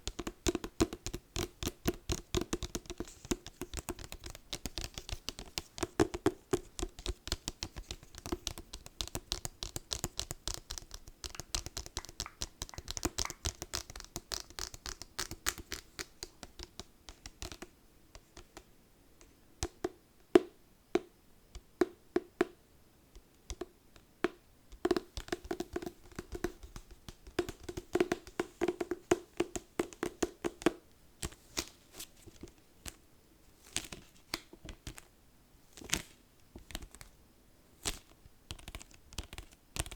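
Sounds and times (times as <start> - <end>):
fingers tapping and scratching book: 0.0 - 18.7, 24.7 - 32.5, 37.8 - 39.9.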